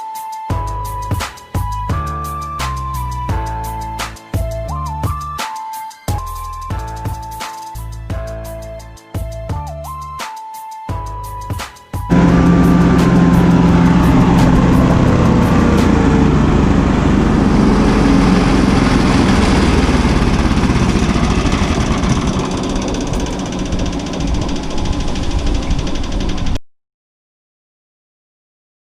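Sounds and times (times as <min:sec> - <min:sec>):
wood chipper engine running: 0:12.1 - 0:26.6.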